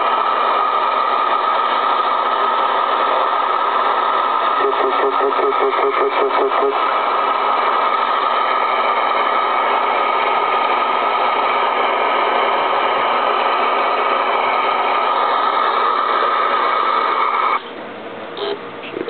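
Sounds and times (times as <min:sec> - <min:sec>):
radio static hiss: 0:04.5 - 0:06.8.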